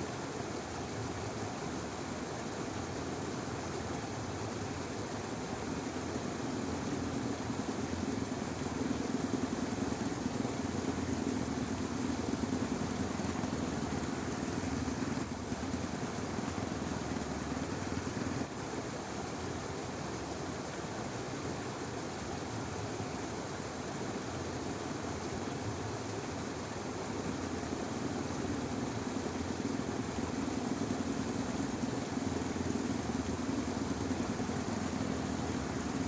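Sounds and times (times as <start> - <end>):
outdoor background noise: 0.0 - 36.0
low engine hum: 5.0 - 18.7, 25.5 - 36.0.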